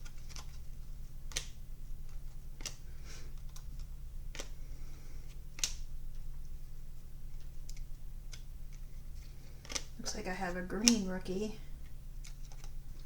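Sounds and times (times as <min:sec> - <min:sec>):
trading cards flipping clicks: 0:00.0 - 0:00.6, 0:01.2 - 0:04.6, 0:05.2 - 0:05.9, 0:07.4 - 0:10.0, 0:12.2 - 0:13.0
steady low hum: 0:00.0 - 0:13.0.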